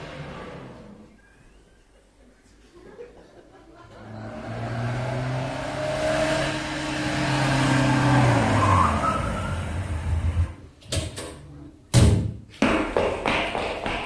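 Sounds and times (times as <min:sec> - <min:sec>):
short rising squeal: 0:06.2 - 0:10.5.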